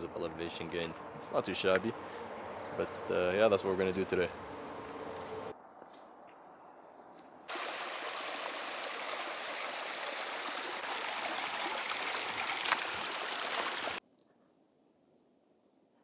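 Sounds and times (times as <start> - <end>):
stream water rushing: 7.5 - 14.0.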